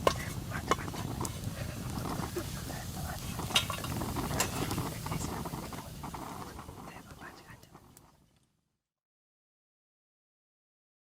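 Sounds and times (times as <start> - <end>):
low steady rumble: 0.0 - 8.2.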